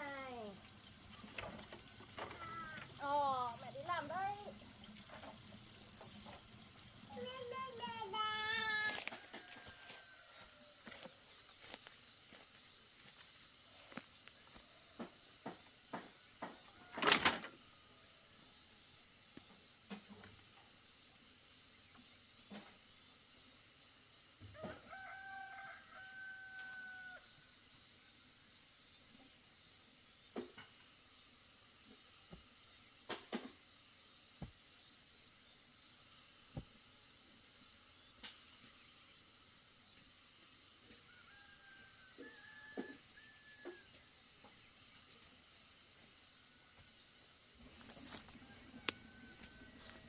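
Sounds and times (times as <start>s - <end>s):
rooster crowing: 8.9s - 11.0s, 24.5s - 27.3s, 41.1s - 43.9s, 48.1s - 50.0s.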